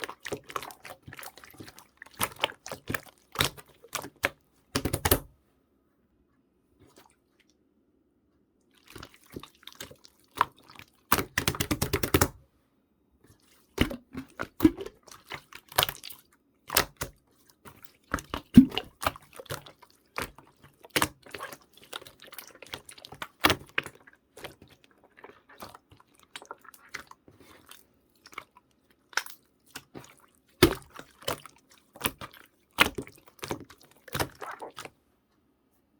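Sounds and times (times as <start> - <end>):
slime squeezed by hand: 29.1 - 34.9.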